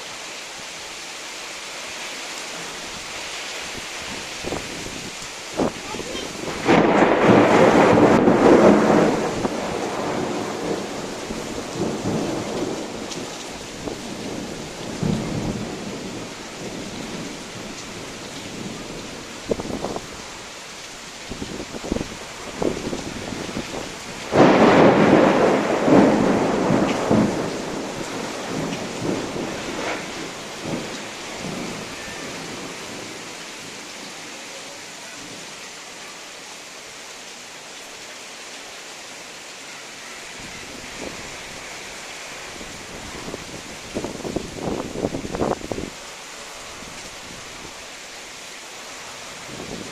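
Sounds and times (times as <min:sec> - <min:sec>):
steady rain: 0:00.0 - 0:49.9
thunder rumbling: 0:04.0 - 0:20.3, 0:21.3 - 0:33.3.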